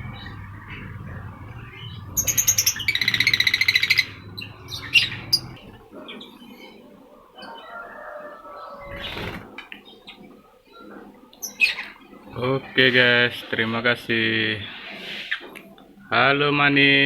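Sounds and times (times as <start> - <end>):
lovebird sharp calls: 0.0 - 5.8
low steady hum: 0.0 - 6.5
lovebirds chirping shrilly: 0.0 - 6.8.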